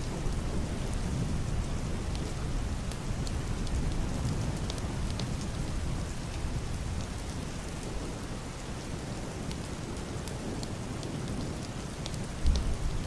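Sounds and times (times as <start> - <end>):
heavy rain on roof and window: 0.0 - 13.0.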